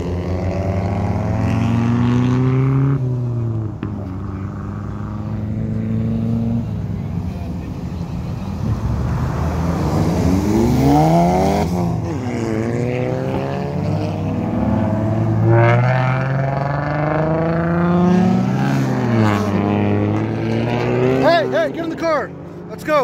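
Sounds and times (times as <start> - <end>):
car engine revving hard: 0.0 - 3.7, 9.0 - 22.4.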